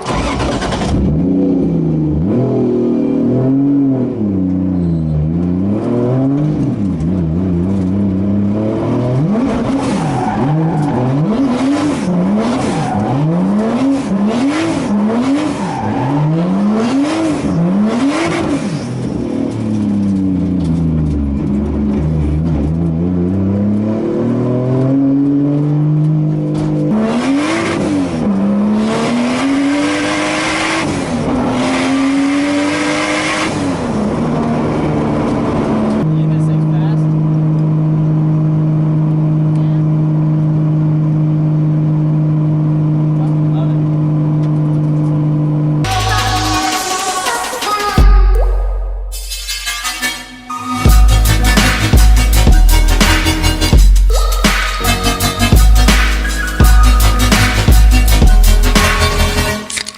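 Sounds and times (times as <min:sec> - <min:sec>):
turbocharged car engine revving: 0:00.0 - 0:47.2, 0:50.9 - 0:59.9.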